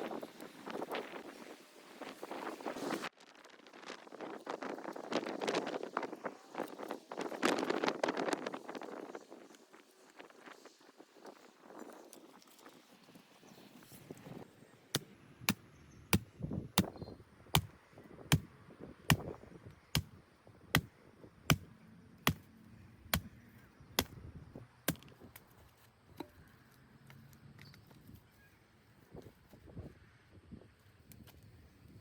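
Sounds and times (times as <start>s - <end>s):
wood being chopped: 16.2s - 17.0s, 17.6s - 18.5s, 19.1s - 20.9s, 21.5s - 22.5s, 23.1s - 23.4s, 24.9s - 25.2s.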